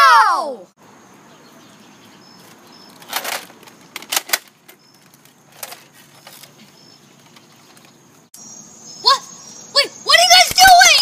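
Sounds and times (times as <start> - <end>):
plastic toy guns clattering: 3.0 - 6.5.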